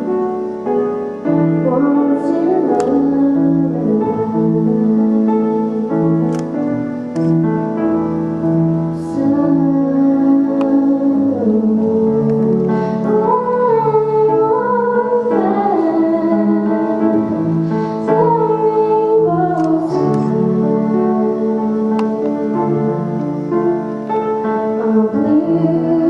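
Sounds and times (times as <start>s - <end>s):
piano chords: 0.0s - 26.0s
woman singing: 1.5s - 5.8s, 9.0s - 23.1s, 24.7s - 26.0s.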